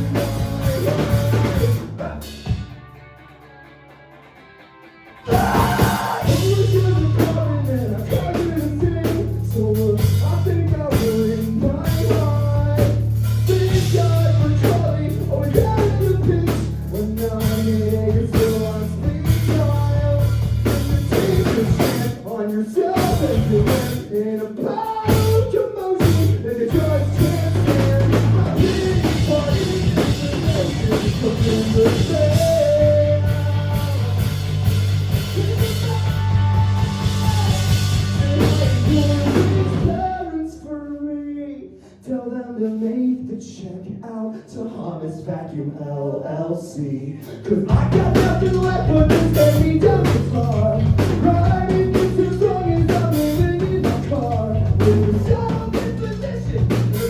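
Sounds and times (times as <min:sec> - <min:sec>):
live rock band playing: 0:00.0 - 0:24.3, 0:24.9 - 0:40.2, 0:47.6 - 0:57.0.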